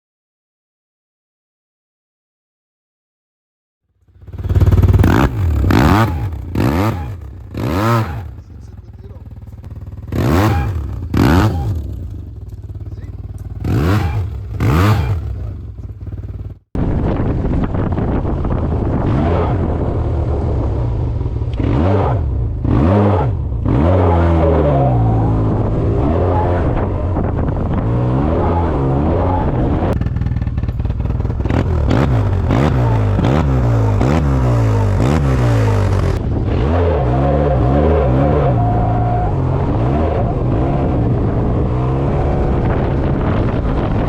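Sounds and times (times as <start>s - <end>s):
scooter engine revving: 4.1s - 16.7s, 18.0s - 44.0s.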